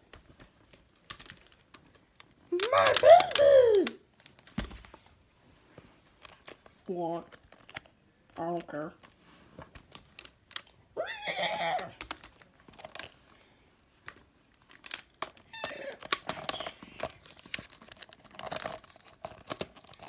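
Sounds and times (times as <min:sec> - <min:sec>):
plastic toy figures clicking: 0:01.0 - 0:04.0, 0:11.6 - 0:13.1, 0:14.1 - 0:17.6
person imitating dinosaur roars: 0:02.6 - 0:04.0.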